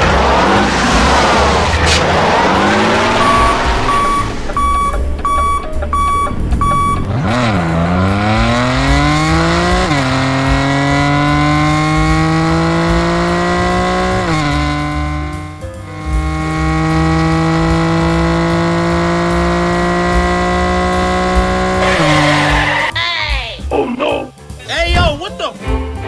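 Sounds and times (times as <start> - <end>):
car engine accelerating: 0.0 - 22.9
short beeps: 3.1 - 7.1.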